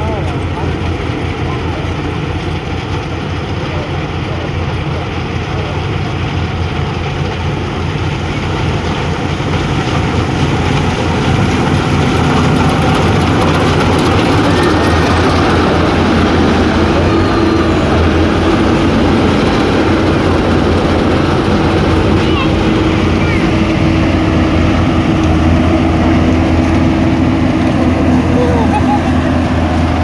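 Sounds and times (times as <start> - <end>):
harvesting machine engine running: 0.0 - 30.0.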